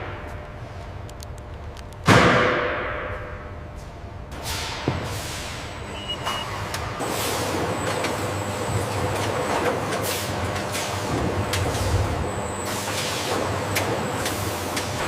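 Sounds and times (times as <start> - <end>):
low machinery hum: 0.0 - 15.0
high beep: 5.8 - 6.6.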